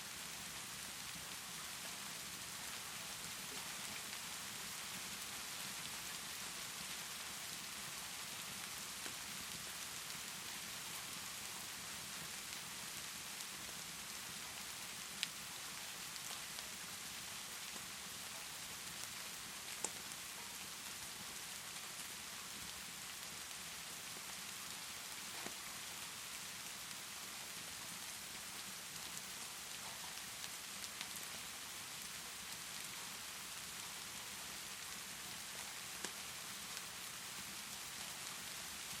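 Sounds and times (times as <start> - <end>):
wood fire popping: 19.8 - 20.0.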